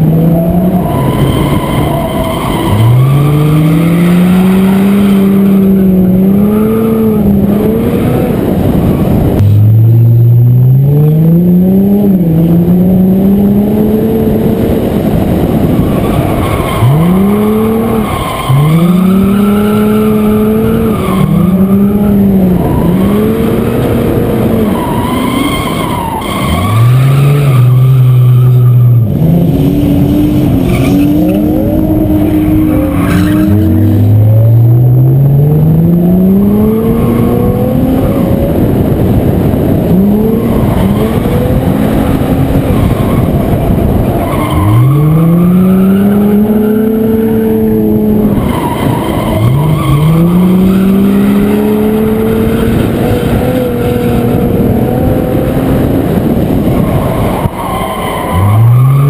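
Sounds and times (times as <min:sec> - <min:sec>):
car engine revving: 0:00.0 - 0:59.0
wind rush: 0:00.0 - 0:59.0.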